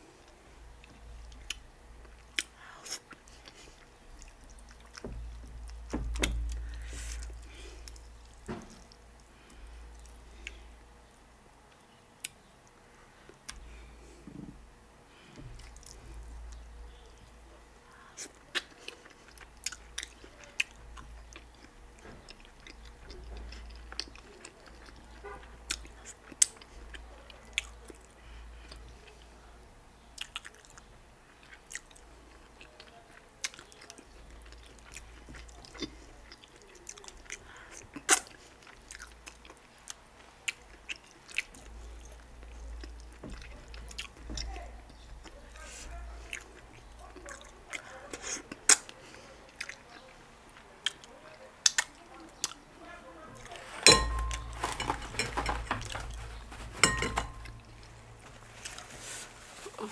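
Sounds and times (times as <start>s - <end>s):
person chewing food: 0.0s - 14.3s, 15.2s - 17.4s, 18.0s - 52.7s, 53.4s - 59.9s
mouth clicks and smacks: 50.8s - 52.6s.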